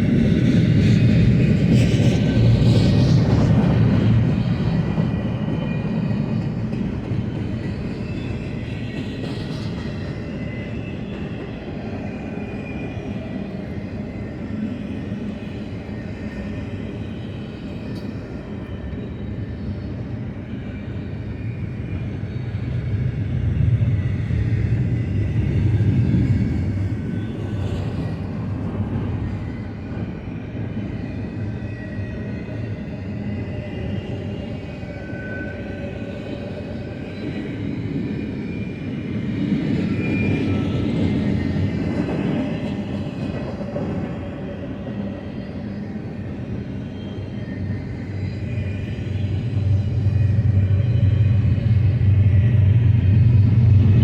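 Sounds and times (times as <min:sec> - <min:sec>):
freight train wheels rumbling on rail: 0:00.0 - 0:54.0.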